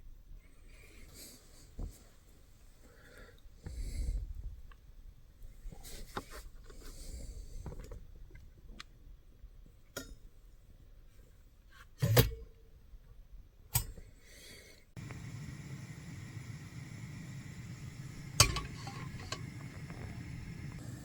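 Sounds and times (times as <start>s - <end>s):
steady background hiss: 14.5s - 21.0s
dishes and utensils clinking: 18.3s - 19.6s.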